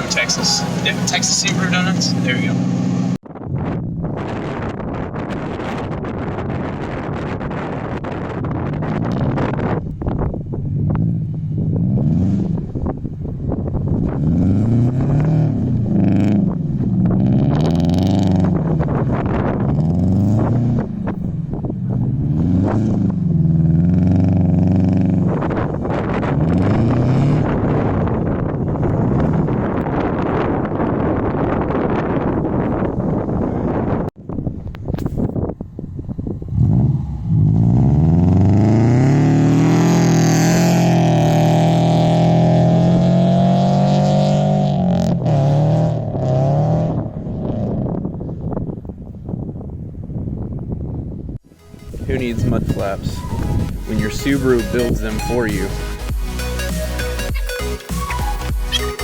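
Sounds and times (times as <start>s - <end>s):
car engine revving: 0.0s - 5.9s, 7.5s - 31.1s, 36.5s - 48.0s.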